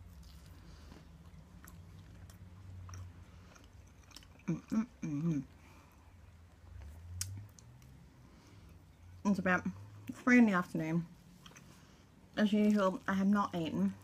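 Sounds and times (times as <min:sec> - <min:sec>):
person chewing with mouth closed: 0:00.0 - 0:06.2
faint low hum: 0:00.0 - 0:14.0.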